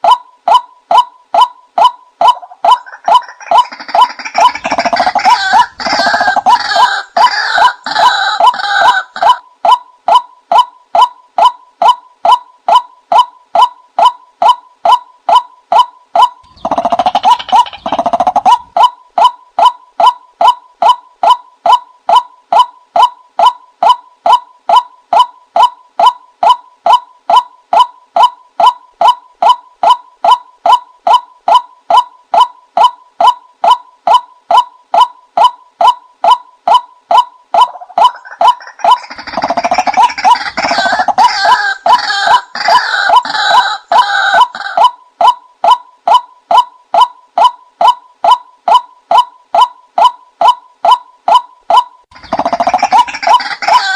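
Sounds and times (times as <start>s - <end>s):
bird calls: 0.0s - 53.9s
bird decoy call: 2.2s - 9.8s, 50.9s - 53.9s.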